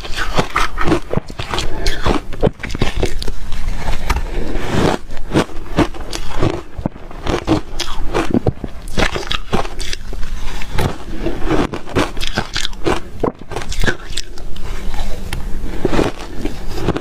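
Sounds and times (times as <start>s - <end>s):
ice crunching between teeth: 0.0s - 3.4s, 4.7s - 14.4s, 15.8s - 17.0s.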